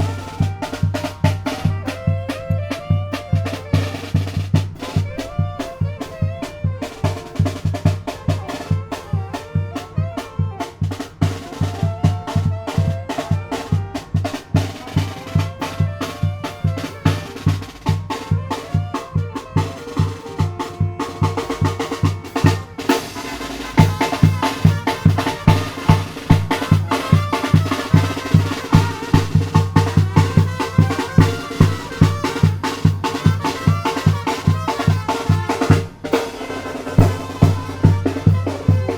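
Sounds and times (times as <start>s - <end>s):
bass drum beat: 0.0s - 2.2s, 4.3s - 8.3s, 23.7s - 36.4s, 37.0s - 38.9s
brass melody: 0.0s - 38.9s
snare drum: 0.0s - 38.9s.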